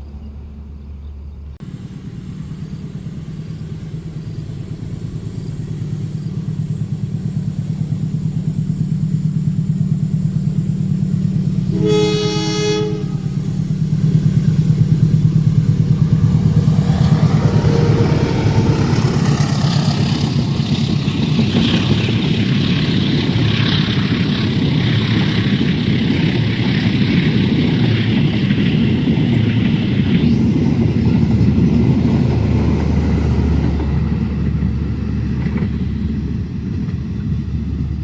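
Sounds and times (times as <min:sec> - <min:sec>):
locomotive engine hum: 0:00.0 - 0:38.0
train rumbling past: 0:00.0 - 0:38.0
train horn: 0:11.7 - 0:13.6
wheels clattering over rails: 0:13.4 - 0:38.0.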